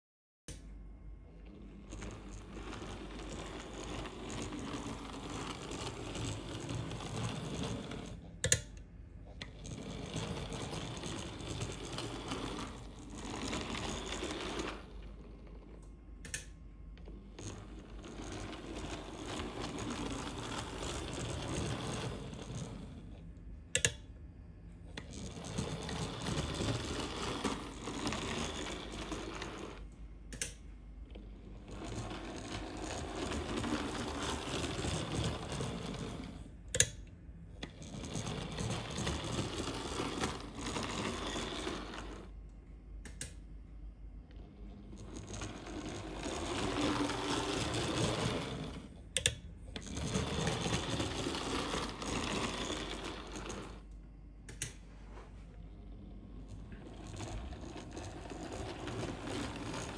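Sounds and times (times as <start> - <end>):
wheels clicking over rails: 1.8 - 8.7, 9.4 - 15.6, 17.1 - 23.0, 24.9 - 30.6, 31.5 - 37.0, 37.6 - 42.3, 44.3 - 53.9, 56.3 - 59.9
model train motor whirring: 1.9 - 8.6, 9.5 - 15.0, 17.4 - 22.9, 25.0 - 29.8, 31.7 - 36.9, 37.7 - 42.3, 44.9 - 53.8.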